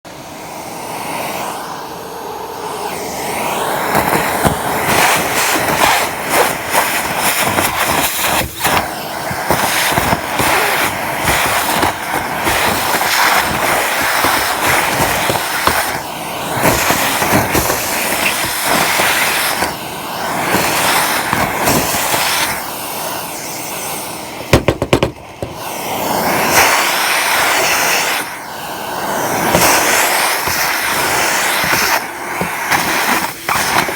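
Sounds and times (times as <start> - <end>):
gutter vacuum running: 0.1 - 33.9
debris clicking and rattling in hose: 4.9 - 16.0.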